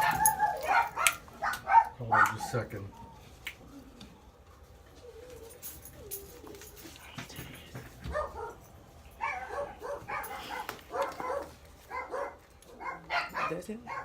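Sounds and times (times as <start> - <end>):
dog barking: 0.0 - 2.6, 8.0 - 14.0.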